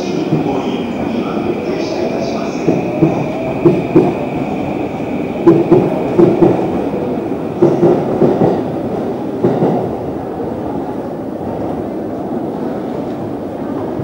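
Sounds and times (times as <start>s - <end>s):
train wheels clattering: 0.0s - 10.0s.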